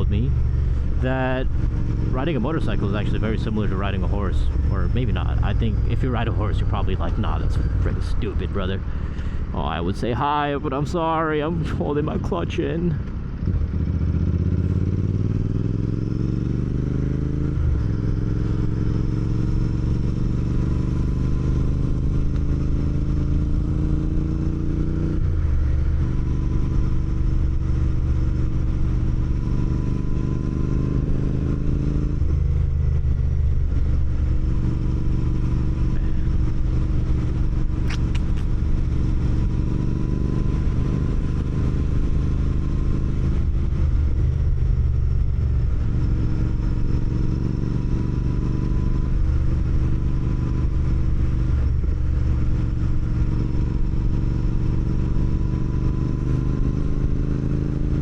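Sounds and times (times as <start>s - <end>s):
motorcycle engine accelerating: 0.0s - 58.0s
sharp click: 37.8s - 38.6s.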